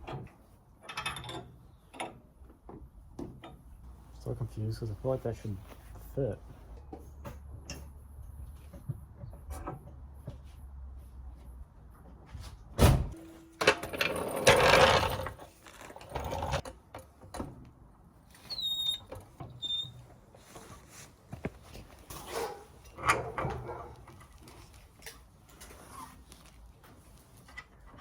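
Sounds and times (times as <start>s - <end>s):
metal scraping and rattling: 13.2s - 16.7s.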